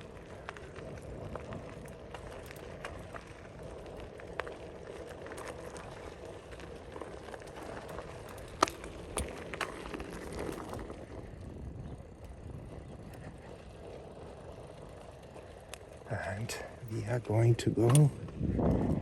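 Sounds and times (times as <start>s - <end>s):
light clicks: 17.8s - 18.4s.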